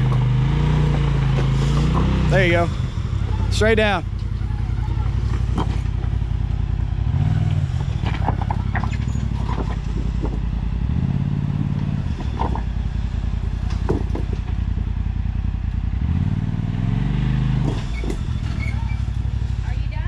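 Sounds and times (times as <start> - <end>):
utv engine revving: 0.0 - 20.0
rocks clicking and knocking: 5.2 - 6.2, 7.5 - 10.6, 11.6 - 12.8.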